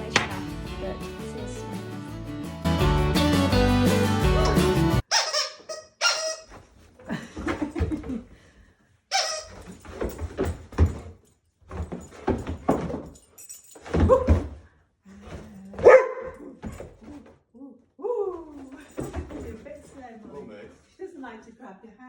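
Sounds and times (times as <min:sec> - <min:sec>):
dog barking: 0:15.8 - 0:16.5.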